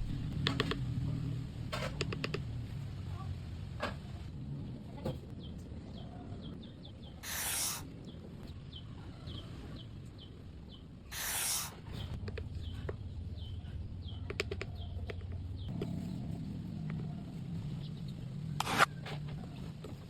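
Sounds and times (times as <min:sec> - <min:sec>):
steady low hum: 0:00.0 - 0:20.0
small bird chirping: 0:05.3 - 0:20.0
bursts of hiss: 0:07.2 - 0:07.9, 0:11.1 - 0:12.0
sharp clicks: 0:14.2 - 0:16.0.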